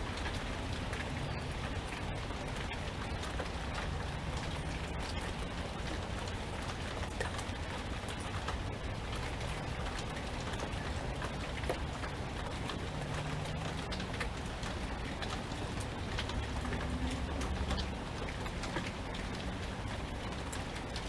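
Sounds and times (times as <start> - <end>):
constant low rumble: 0.0 - 21.0
steady rain falling: 0.0 - 21.0.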